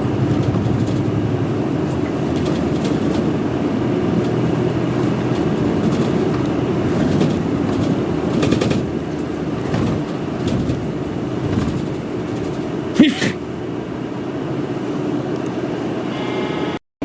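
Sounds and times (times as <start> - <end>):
bus engine drone: 0.0 - 16.8
road noise: 0.0 - 16.8.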